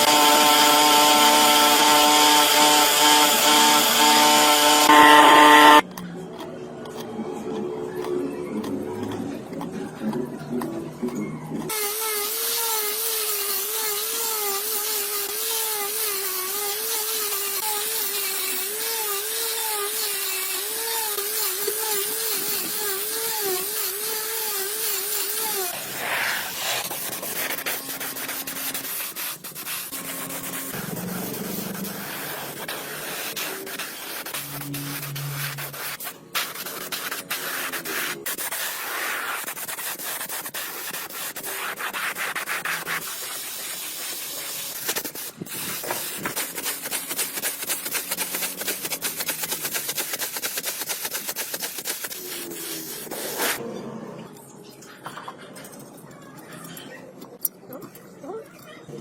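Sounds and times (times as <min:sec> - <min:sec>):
sanding or scraping on a part: 0:00.0 - 0:05.8, 0:11.7 - 0:53.6
small power tool motor whining: 0:00.0 - 0:05.8.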